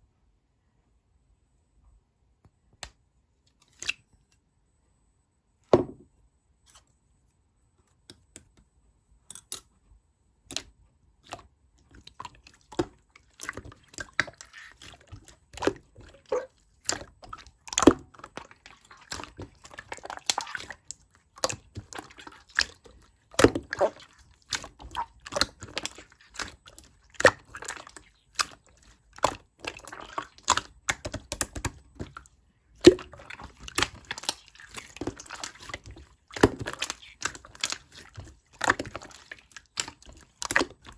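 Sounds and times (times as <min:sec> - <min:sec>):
slime squishing and popping: 0:12.0 - 0:40.9.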